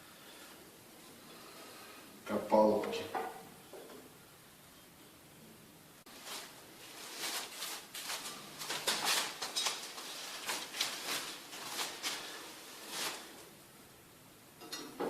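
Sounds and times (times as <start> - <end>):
tape ripping off roll: 7.1 - 13.4.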